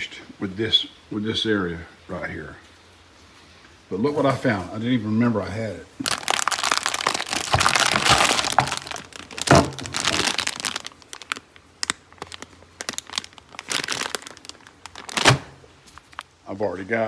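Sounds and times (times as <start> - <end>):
crackling and rustling of rummaging: 4.2 - 16.4.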